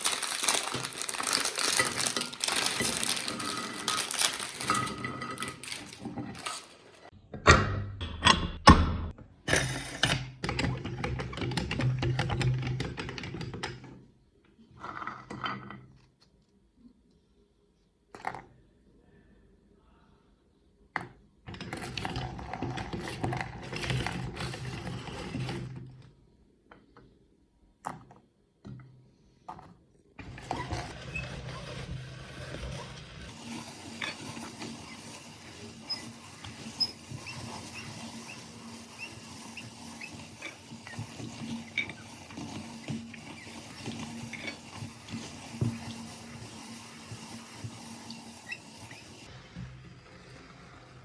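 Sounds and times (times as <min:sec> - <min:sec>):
meat grinder running: 0:00.0 - 0:06.7, 0:30.2 - 0:51.0
cookies cracking in grinder: 0:00.0 - 0:07.1.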